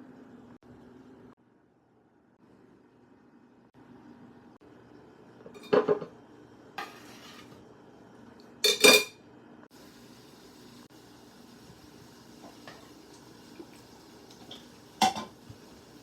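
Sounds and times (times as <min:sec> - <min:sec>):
dishes and utensils clinking: 0:05.5 - 0:06.1, 0:08.6 - 0:09.2, 0:14.4 - 0:15.4.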